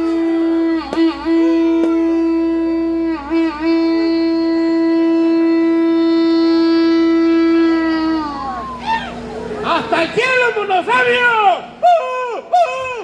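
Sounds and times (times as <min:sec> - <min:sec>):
wind instrument long note: 0:00.0 - 0:09.3.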